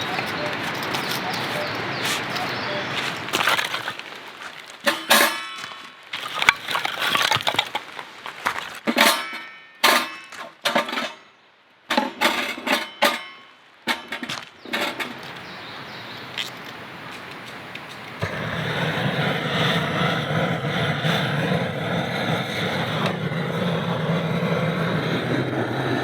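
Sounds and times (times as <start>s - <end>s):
metallic clanks and clinks: 0.0s - 2.5s, 4.8s - 8.0s, 8.8s - 11.3s, 11.9s - 15.3s.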